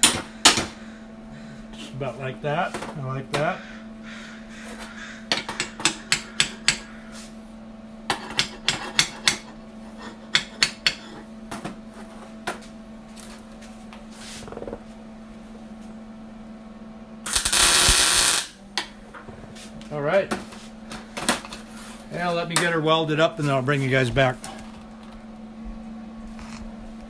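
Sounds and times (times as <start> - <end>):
steady low hum: 0.0 - 27.0
loud hissing burst: 17.3 - 18.6.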